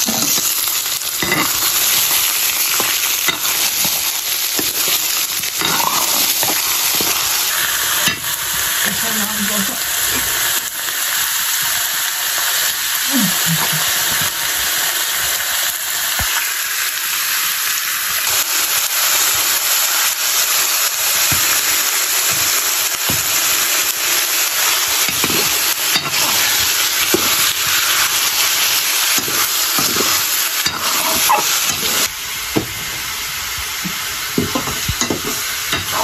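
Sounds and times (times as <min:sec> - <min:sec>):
chicken frying in hot oil: 0:00.0 - 0:36.0
ladle scraping metal pan: 0:29.2 - 0:32.1.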